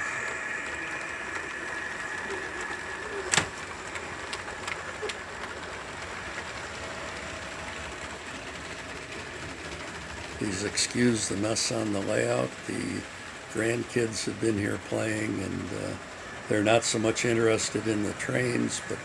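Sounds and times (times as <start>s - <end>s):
diesel engine sound from small speaker: 0.0s - 19.0s
toy train motors whirring: 0.0s - 19.0s
sharp clicks: 0.4s - 5.6s.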